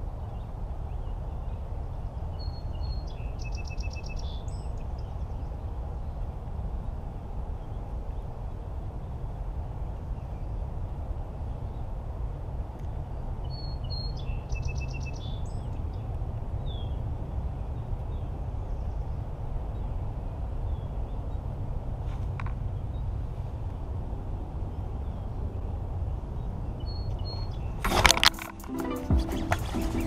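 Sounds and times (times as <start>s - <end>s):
bird chirping and trilling: 2.4s - 5.1s
low outdoor rumble: 4.3s - 28.7s.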